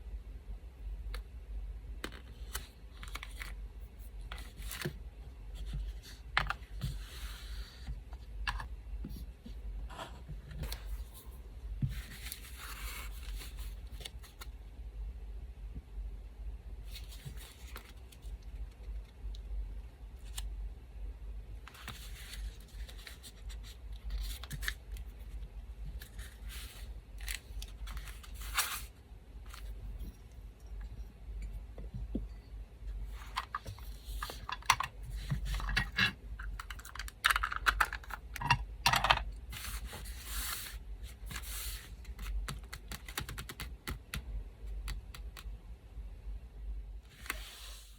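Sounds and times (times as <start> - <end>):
paper being handled: 21.7 - 25.4, 26.0 - 29.8, 39.5 - 42.8.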